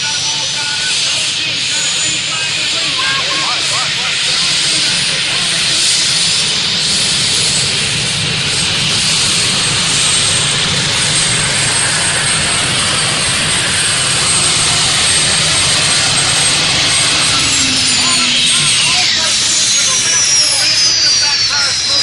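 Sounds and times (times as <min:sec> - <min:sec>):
jet turbine rushing with whine: 0:00.0 - 0:22.0.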